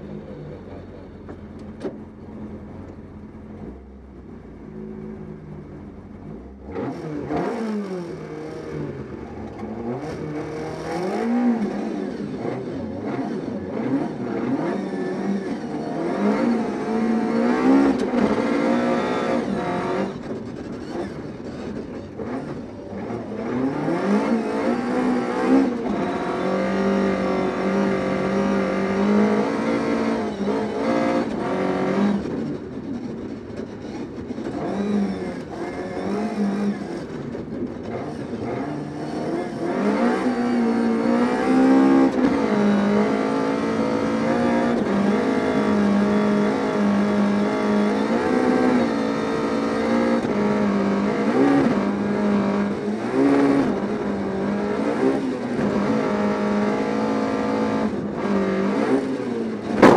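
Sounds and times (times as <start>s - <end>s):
car engine revving: 6.3s - 59.9s.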